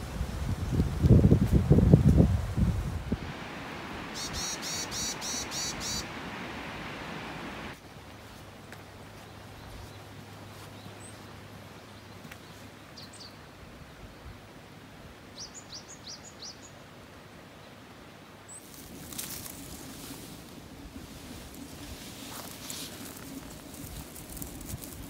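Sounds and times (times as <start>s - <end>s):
rustling and crackling of plants: 0.0s - 12.8s, 18.5s - 25.0s
small bird chirping: 4.2s - 6.1s.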